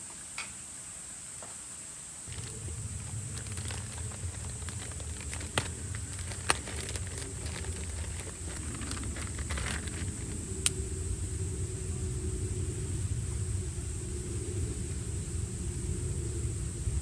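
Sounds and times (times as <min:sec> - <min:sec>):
wood fire crackling: 0:02.3 - 0:10.8
low rumble: 0:02.3 - 0:17.0.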